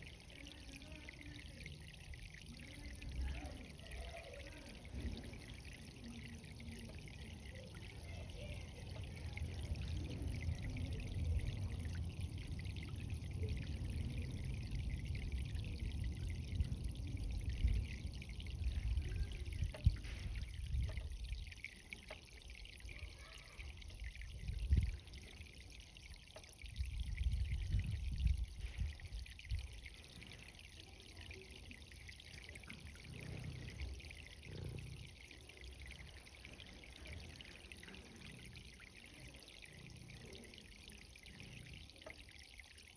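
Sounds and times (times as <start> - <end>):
water running and trickling: 0.0 - 42.9.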